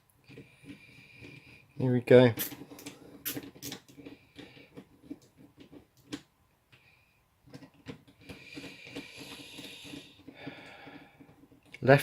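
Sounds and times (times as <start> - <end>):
plastic parts clicking and rattling: 0.1 - 12.0
screwdriver scraping a screw: 0.3 - 1.7, 2.4 - 6.2, 7.5 - 10.3.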